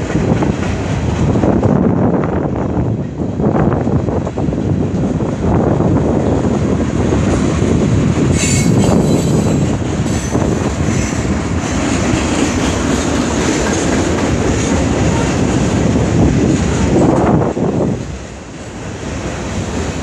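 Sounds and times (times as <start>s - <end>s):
freight train cars rolling past: 0.0s - 20.0s
high-pitched wheel squeal: 8.4s - 11.2s.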